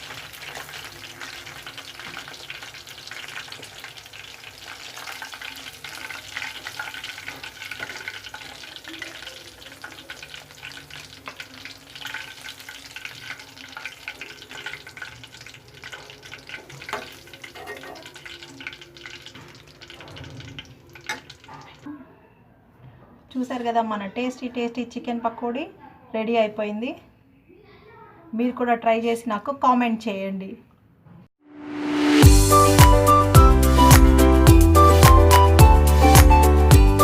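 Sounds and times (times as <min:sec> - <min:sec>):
food sizzling in hot oil: 0:00.0 - 0:21.8.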